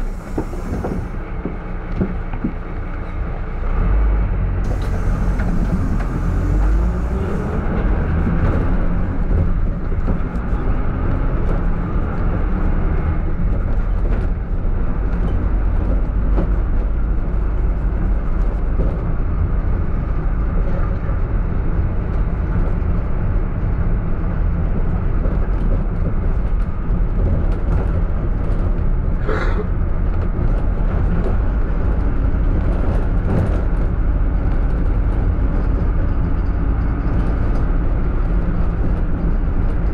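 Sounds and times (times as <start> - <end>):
minibus engine and road rumble: 0.0 - 39.9
short hissing burst: 4.7 - 7.5.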